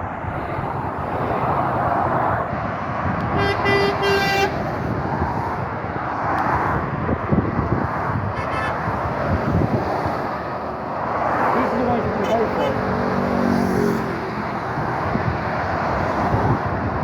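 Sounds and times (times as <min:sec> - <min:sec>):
road traffic passing: 0:00.0 - 0:17.0
vehicle horn toot: 0:03.3 - 0:04.6, 0:08.3 - 0:08.9.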